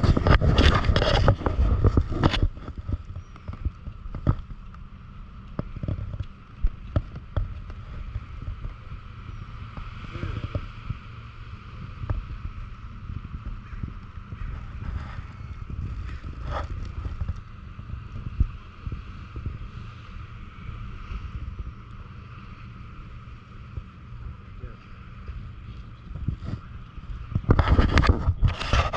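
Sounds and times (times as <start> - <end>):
bicycle knocks and rattles: 0.0 - 11.0
road rumble: 0.0 - 28.9
wind buffeting microphone: 0.0 - 28.9.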